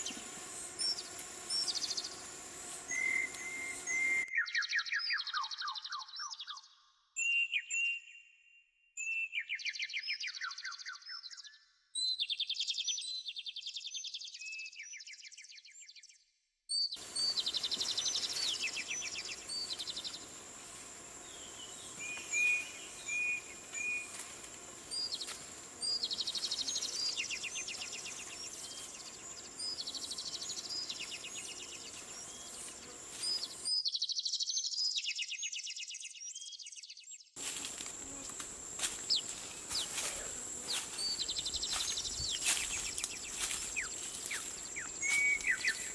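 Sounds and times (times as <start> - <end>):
background hiss: 0.0 - 4.2, 17.0 - 33.7, 37.4 - 45.9
birdsong with descending trills: 2.9 - 8.2, 21.3 - 37.9, 38.8 - 45.9.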